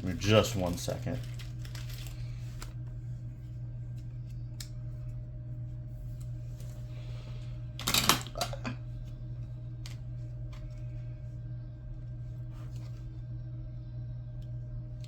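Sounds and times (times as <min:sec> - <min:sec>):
plastic rustling: 0:00.0 - 0:02.8
low hum: 0:00.0 - 0:15.0.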